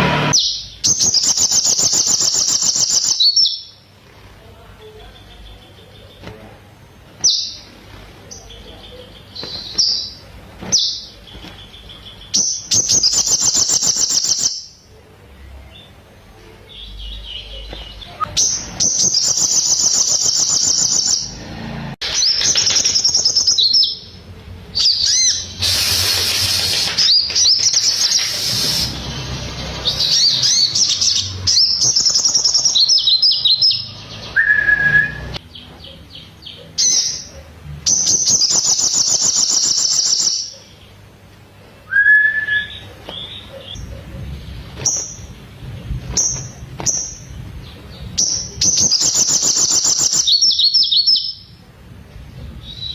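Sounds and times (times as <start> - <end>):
bird singing high trills: 0.0 - 3.8, 9.2 - 14.8, 16.8 - 21.4, 27.0 - 35.4, 37.9 - 40.6, 48.2 - 51.6.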